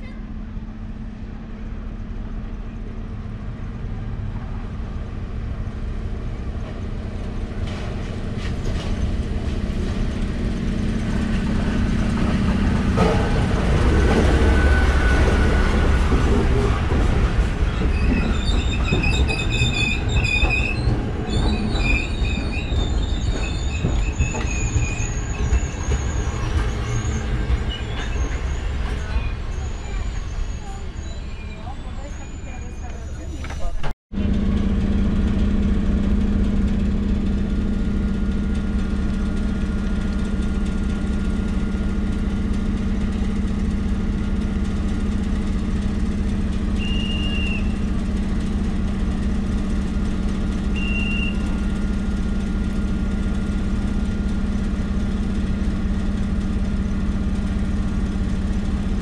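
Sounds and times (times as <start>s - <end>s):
diesel locomotive engine hum: 0.0s - 59.0s
wheel and brake squeals: 13.0s - 16.7s, 17.6s - 33.8s, 46.8s - 48.0s, 50.7s - 51.6s.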